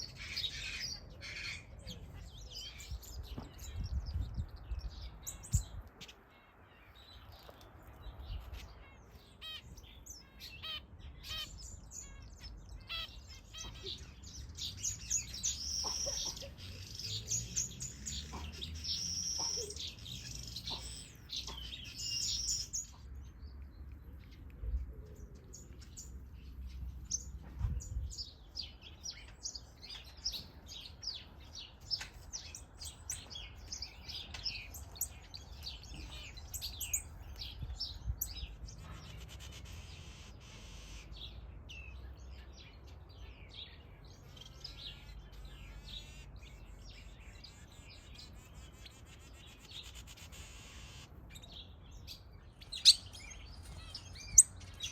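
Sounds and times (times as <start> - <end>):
finches chirping: 9.4 - 23.1, 47.8 - 54.9.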